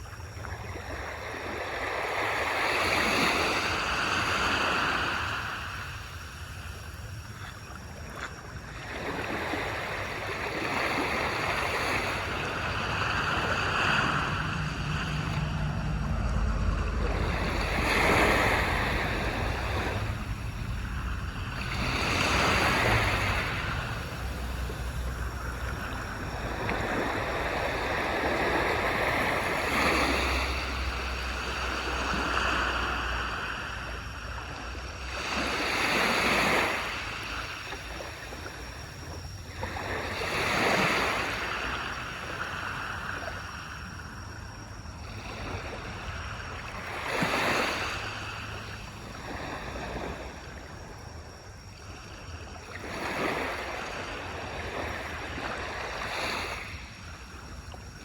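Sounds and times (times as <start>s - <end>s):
low rumble of sea: 0.0s - 58.0s
waves breaking on a beach: 0.0s - 58.0s.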